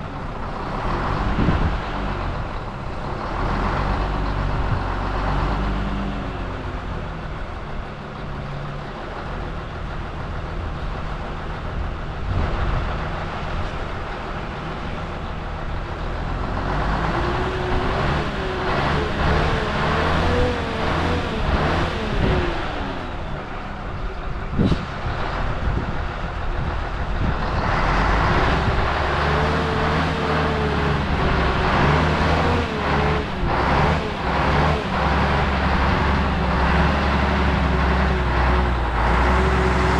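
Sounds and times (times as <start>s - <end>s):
vehicle engine revving: 0.3s - 7.5s, 14.7s - 23.7s, 24.5s - 39.9s.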